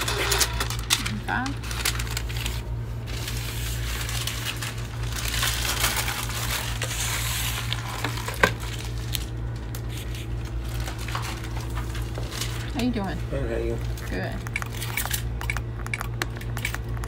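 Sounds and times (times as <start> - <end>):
paper rustling: 0.0 - 12.8
steady low hum: 0.0 - 17.0.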